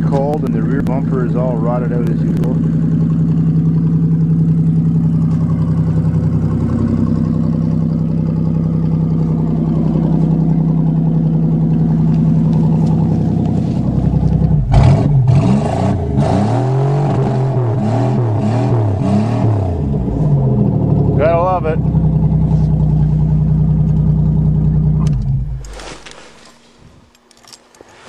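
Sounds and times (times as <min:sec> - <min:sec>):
engine clattering knocks: 0:00.0 - 0:15.3
car engine idling and revving: 0:00.0 - 0:27.6.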